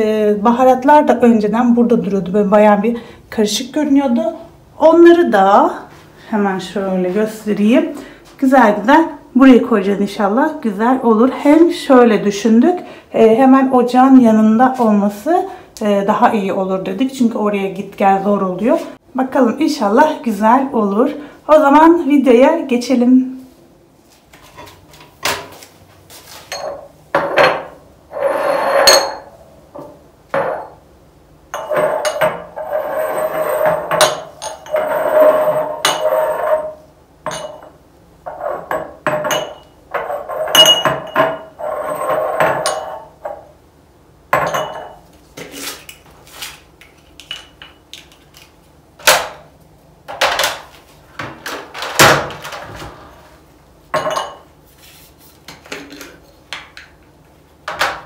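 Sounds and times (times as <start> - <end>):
glass jars clinking: 26.5 - 27.6, 31.5 - 32.6, 33.7 - 37.8, 38.6 - 41.6, 42.4 - 43.4, 44.4 - 45.0, 53.9 - 54.5.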